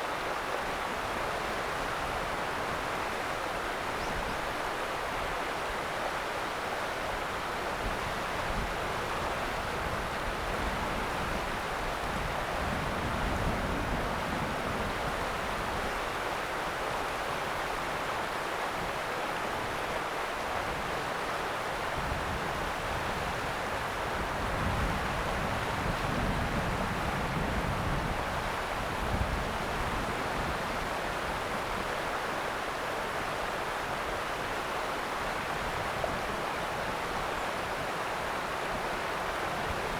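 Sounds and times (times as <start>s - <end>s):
river water rushing: 28.2s - 39.9s.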